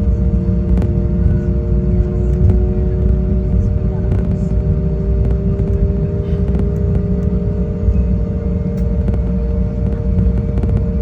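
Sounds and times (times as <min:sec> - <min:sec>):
jet engines rumbling in cabin: 0:00.0 - 0:11.0.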